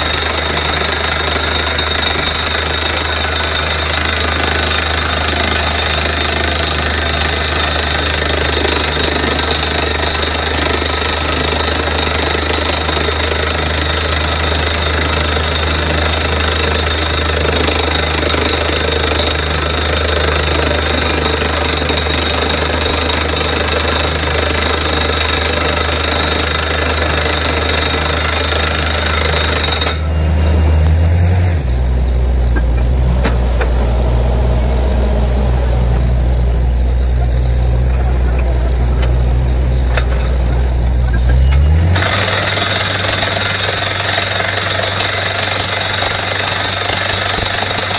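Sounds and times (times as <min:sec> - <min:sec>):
air hammer pounding: 0:00.0 - 0:30.0, 0:42.0 - 0:47.9
diesel engine and compressor: 0:00.0 - 0:47.9.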